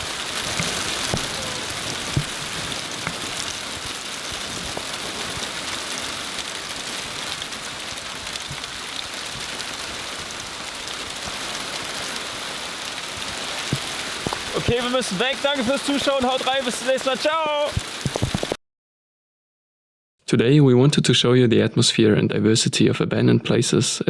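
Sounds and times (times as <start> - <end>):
steady rain falling: 0.0 - 18.6
water drips: 0.0 - 18.6.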